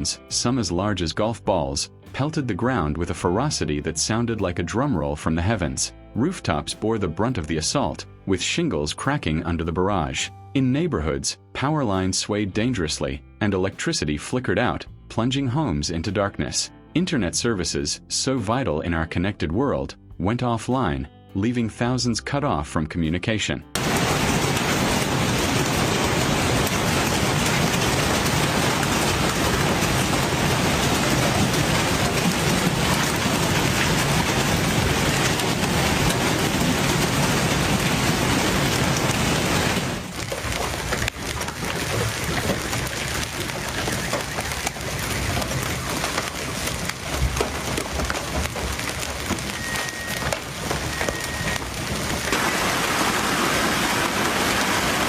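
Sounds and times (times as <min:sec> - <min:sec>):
heavy rain and hail: 0:23.8 - 0:55.0.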